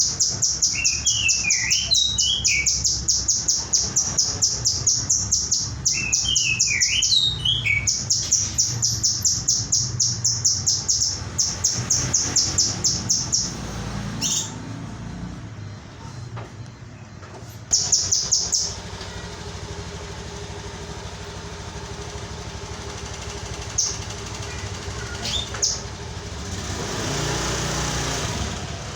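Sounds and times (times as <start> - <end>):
swooping whistled bird phrases: 0.0 - 13.6, 23.7 - 26.0
bird trilling: 0.0 - 14.7, 17.7 - 28.6
bird chirps: 0.0 - 14.9, 17.0 - 19.4, 23.0 - 28.6.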